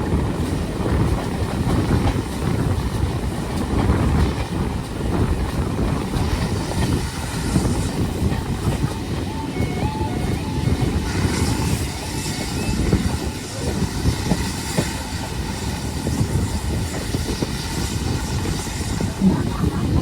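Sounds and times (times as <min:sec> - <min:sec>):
train knocks and clatter: 0:00.0 - 0:20.0
train wheels rumbling on rail: 0:00.0 - 0:20.0.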